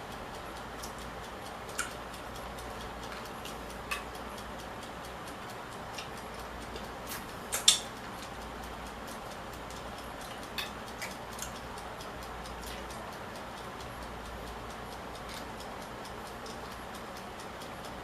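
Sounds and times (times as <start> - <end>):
faint regular ticking: 0.0 - 18.0.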